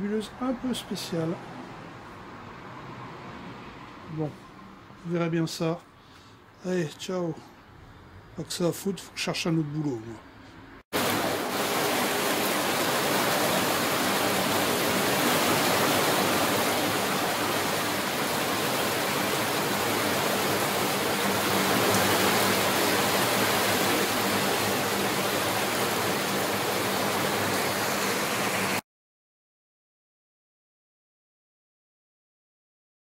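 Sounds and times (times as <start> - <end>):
rain falling: 11.0 - 28.8.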